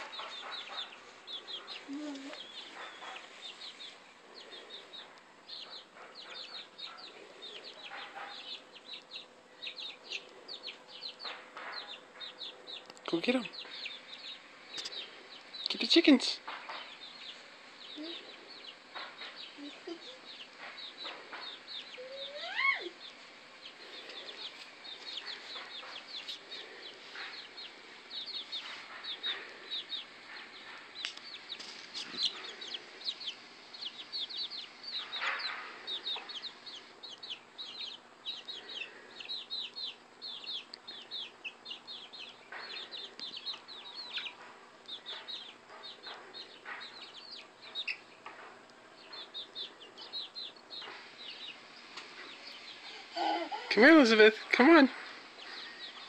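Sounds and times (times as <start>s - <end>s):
chickens peeping: 0.0s - 56.0s.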